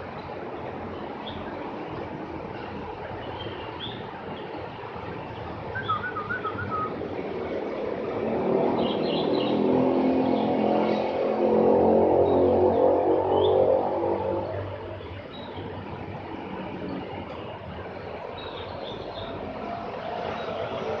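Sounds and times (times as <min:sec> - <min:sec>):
steady background noise: 0:00.0 - 0:21.0
songbird chirping: 0:05.3 - 0:06.9.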